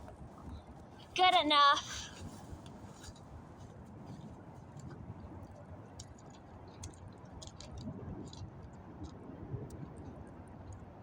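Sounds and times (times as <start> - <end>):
soft clicks and ticks: 4.7 - 10.9.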